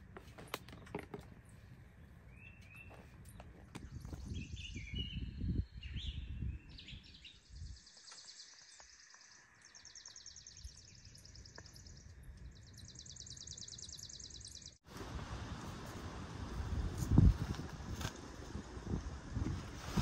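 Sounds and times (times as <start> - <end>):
wind gusting on microphone: 2.4 - 7.8, 15.0 - 20.0.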